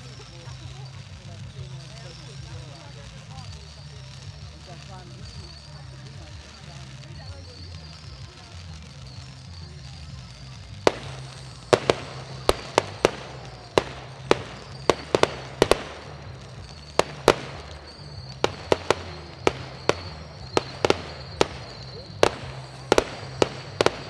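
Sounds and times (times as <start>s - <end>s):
firework shells bursting: 9.9s - 24.0s.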